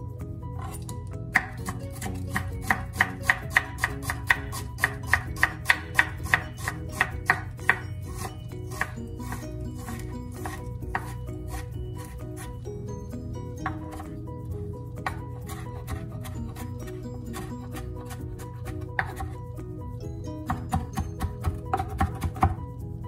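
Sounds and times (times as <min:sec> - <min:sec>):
knife chopping on cutting board: 0:00.6 - 0:12.5, 0:17.4 - 0:19.4, 0:20.4 - 0:22.6.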